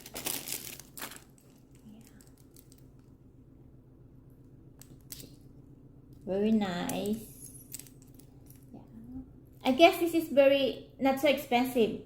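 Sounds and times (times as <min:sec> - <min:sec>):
packaging crinkle: 0:00.0 - 0:03.1
faint room hum: 0:00.0 - 0:12.0.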